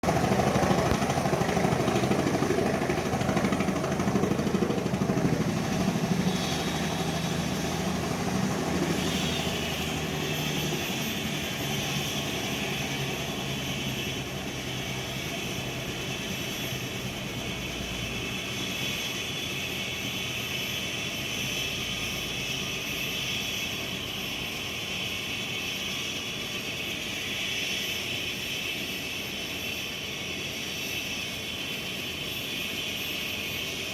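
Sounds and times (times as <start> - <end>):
helicopter rotor noise: 0.0 - 33.9
high turbine whine: 0.0 - 33.9.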